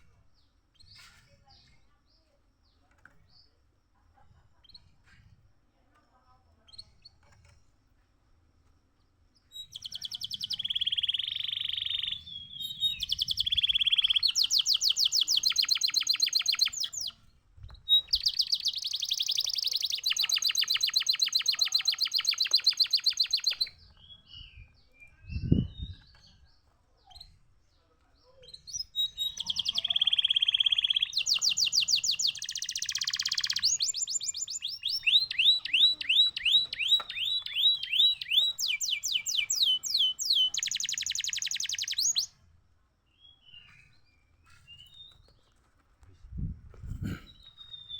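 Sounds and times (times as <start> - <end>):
canary trilling: 9.6 - 17.2, 17.9 - 23.8, 28.6 - 42.3.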